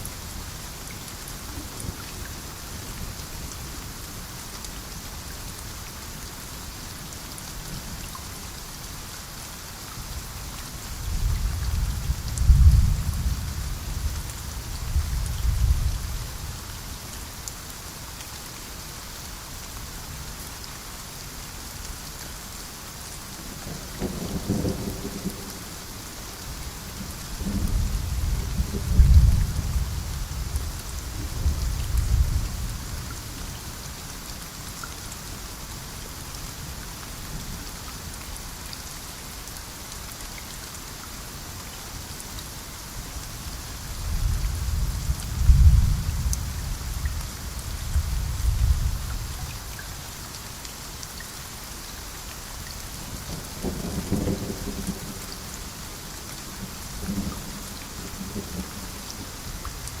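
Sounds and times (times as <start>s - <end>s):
heavy rain: 0.0s - 60.0s
thunder rumbling: 44.1s - 47.1s.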